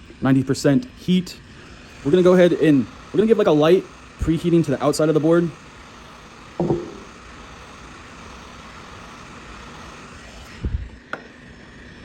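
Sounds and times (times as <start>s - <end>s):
heat gun blowing: 0.9s - 12.0s
low thump: 6.6s - 7.1s.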